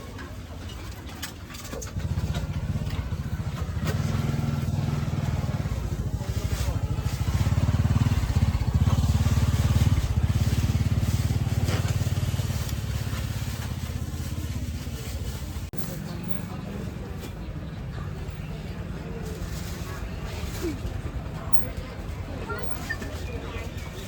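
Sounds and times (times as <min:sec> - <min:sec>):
small engine running: 0:01.5 - 0:14.9.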